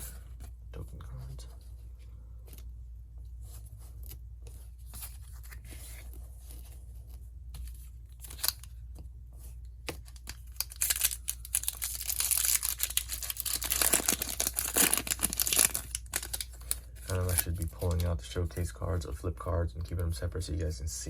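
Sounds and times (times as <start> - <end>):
wrapper tearing and crinkling: 8.2 - 8.7, 10.1 - 18.1.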